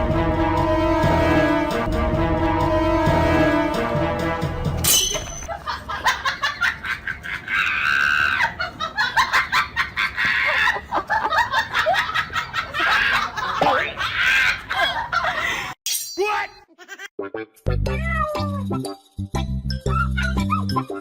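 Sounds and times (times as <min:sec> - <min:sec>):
people laughing and shrieking: 0:05.5 - 0:15.7, 0:19.8 - 0:21.0.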